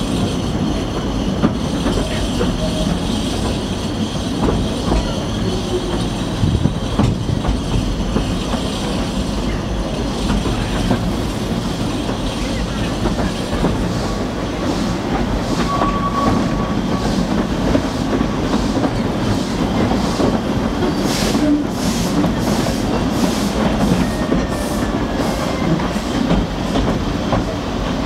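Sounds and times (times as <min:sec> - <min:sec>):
train rumbling: 0:00.0 - 0:28.0
wheels clickety-clack over rail joints: 0:00.0 - 0:28.0.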